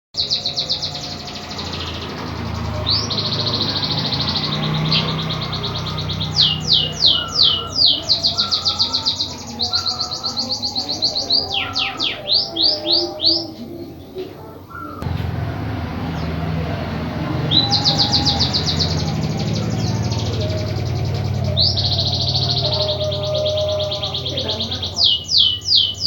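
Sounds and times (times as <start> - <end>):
songbird singing rapid trills: 0.2 - 13.6, 16.1 - 26.0
downward-sweeping bird whistles: 17.4 - 26.0.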